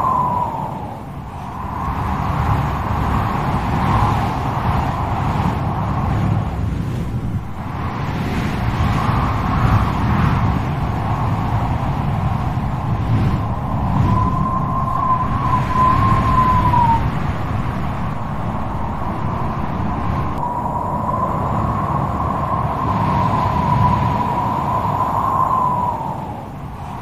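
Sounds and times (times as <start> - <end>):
strong gusty wind: 0.0 - 27.0
thin wavering whistle: 13.4 - 17.1.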